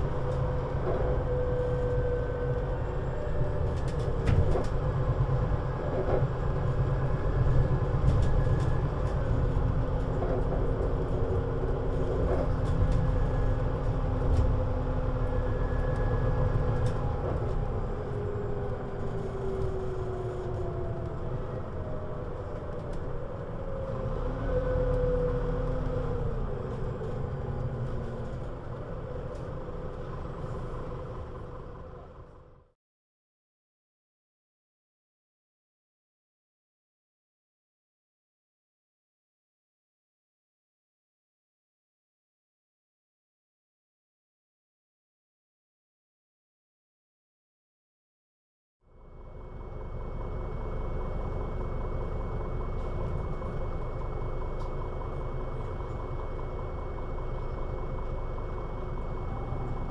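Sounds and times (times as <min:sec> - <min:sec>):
bus engine rumbling: 0:00.0 - 0:32.8, 0:48.9 - 0:59.9.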